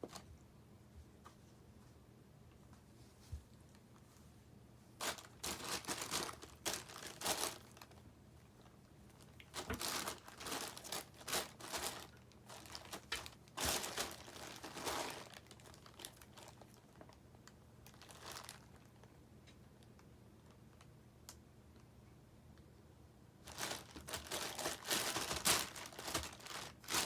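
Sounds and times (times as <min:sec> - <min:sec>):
packaging crackling and rustling: 0:05.0 - 0:19.2, 0:23.4 - 0:27.0.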